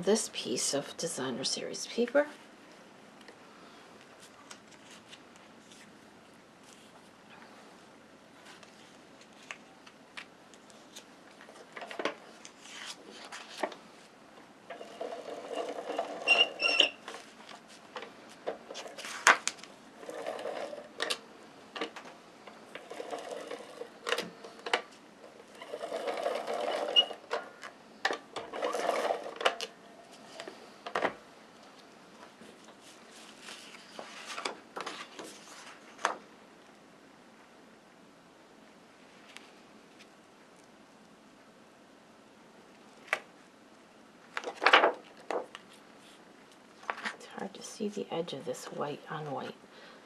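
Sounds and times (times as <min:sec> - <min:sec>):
paper handling: 0:08.4 - 0:14.0, 0:17.1 - 0:19.8, 0:31.7 - 0:36.2, 0:44.3 - 0:46.2.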